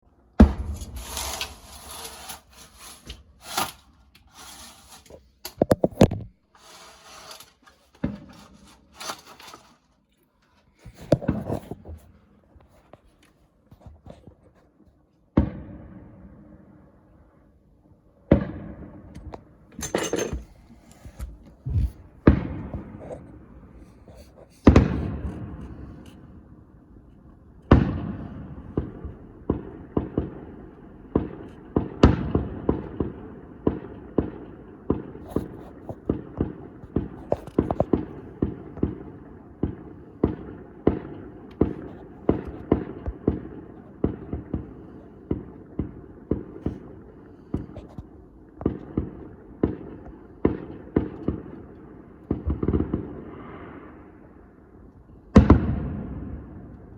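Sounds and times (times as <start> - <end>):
fireworks bangs: 0.4 - 5.0, 18.3 - 19.6, 20.4 - 26.5, 27.6 - 47.8, 55.4 - 56.7.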